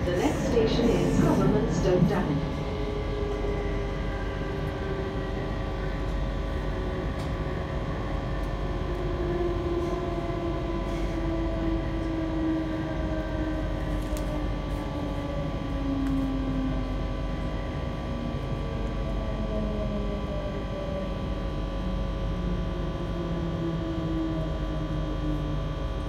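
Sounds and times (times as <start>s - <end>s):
steady hum: 0.0s - 8.7s.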